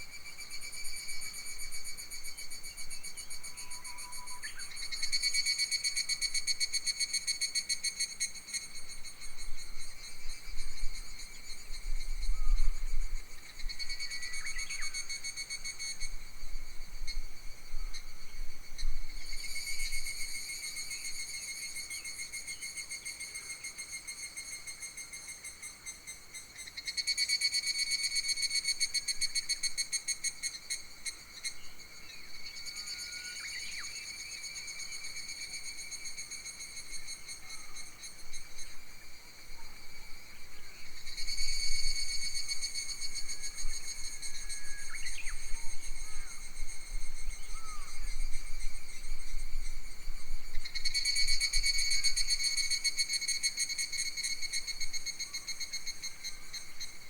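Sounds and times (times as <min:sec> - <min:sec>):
low rumble of wind: 0:09.1 - 0:13.8
cicadas buzzing: 0:26.5 - 0:57.0.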